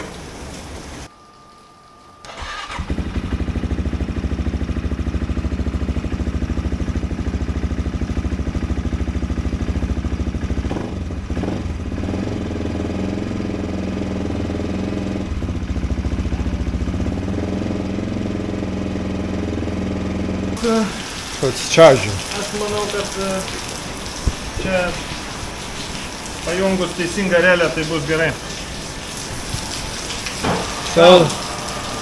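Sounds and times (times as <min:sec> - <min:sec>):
motorcycle engine starting: 0:02.2 - 0:20.9
motorcycle engine idling: 0:02.3 - 0:20.7.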